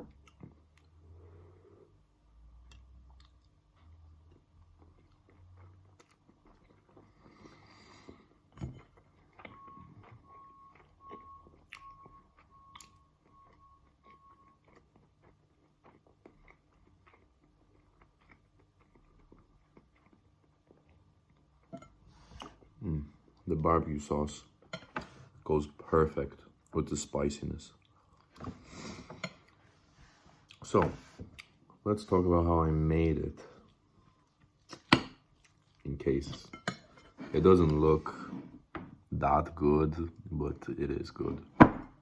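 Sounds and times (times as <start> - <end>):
faint chewing and biting: 2.5 - 23.4, 33.4 - 36.2.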